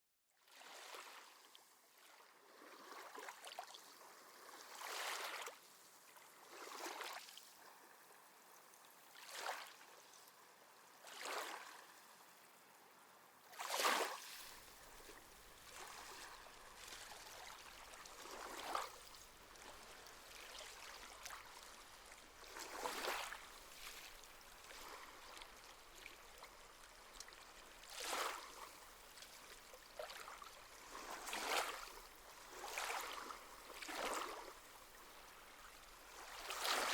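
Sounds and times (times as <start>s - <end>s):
small waves lapping: 0.5s - 36.9s
faint water wash: 14.3s - 36.9s.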